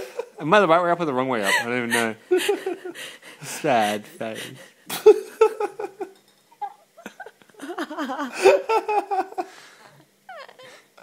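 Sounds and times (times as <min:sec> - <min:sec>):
people laughing: 0:07.0 - 0:09.6.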